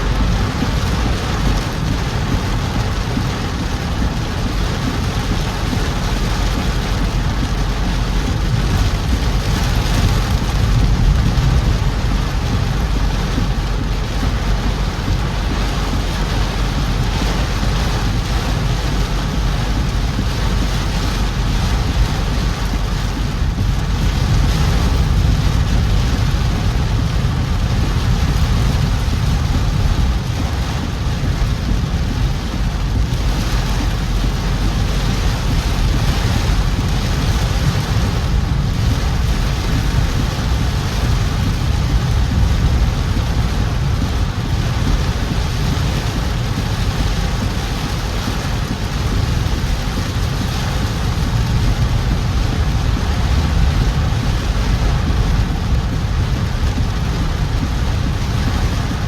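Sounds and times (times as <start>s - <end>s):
rain hiss: 0.0s - 59.0s
road and engine rumble: 0.0s - 59.0s.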